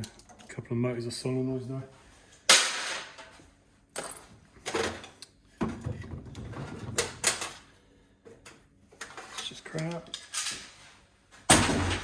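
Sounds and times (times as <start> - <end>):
plastic and metal parts clattering: 4.0 - 7.7, 9.0 - 10.8.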